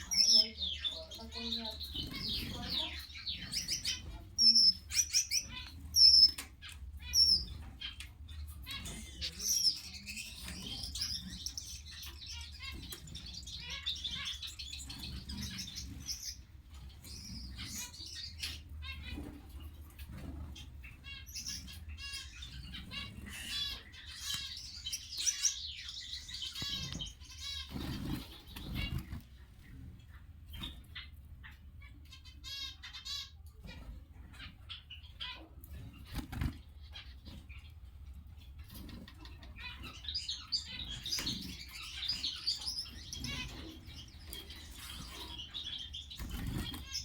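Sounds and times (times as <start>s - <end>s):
finches chirping: 0.0s - 47.0s.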